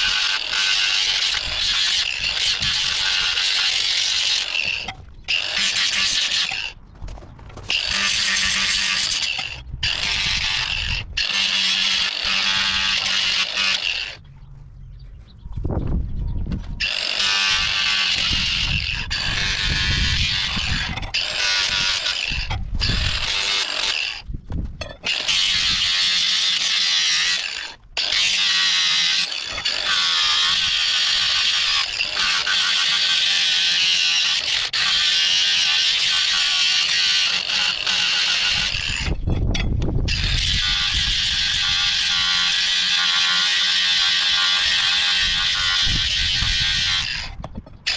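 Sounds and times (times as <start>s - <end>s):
grinder grinding metal: 0.0s - 6.8s, 7.6s - 14.2s, 16.8s - 47.9s
grinder motor humming: 7.7s - 14.2s, 16.8s - 24.2s, 40.1s - 47.9s.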